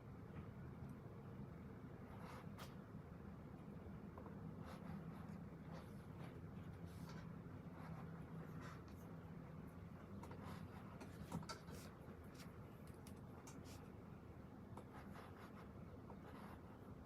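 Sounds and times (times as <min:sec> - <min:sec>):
steady low hum: 0:00.0 - 0:17.0
pen scratching on paper: 0:02.1 - 0:02.8, 0:04.5 - 0:09.1, 0:10.2 - 0:12.5, 0:14.8 - 0:16.8.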